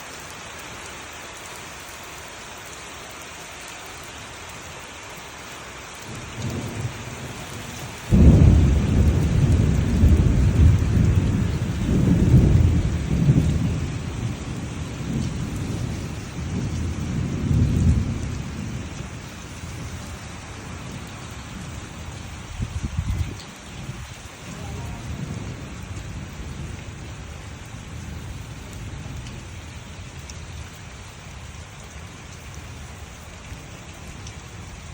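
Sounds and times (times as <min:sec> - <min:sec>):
steady rain falling: 0:00.0 - 0:34.9
thunder rumbling and cracking: 0:06.1 - 0:31.2.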